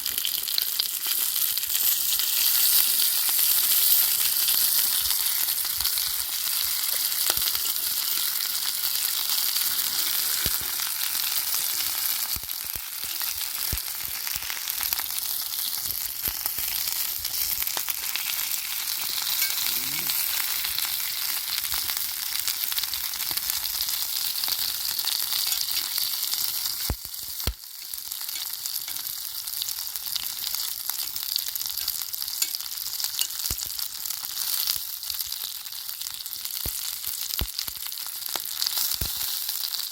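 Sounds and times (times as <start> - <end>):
food sizzling in hot oil: 0.0 - 39.9
oil pops and crackles: 26.8 - 27.7.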